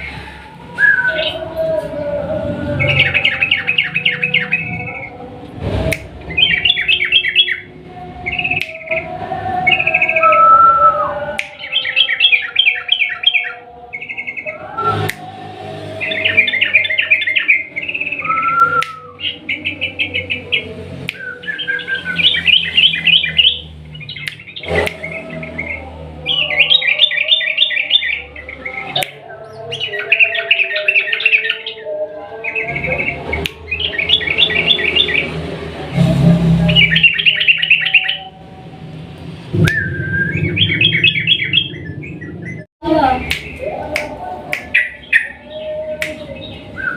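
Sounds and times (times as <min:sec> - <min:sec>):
bird singing rapid chattering song: 0:02.8 - 0:05.2, 0:06.3 - 0:14.6, 0:16.0 - 0:35.4, 0:36.7 - 0:38.3, 0:39.8 - 0:43.7.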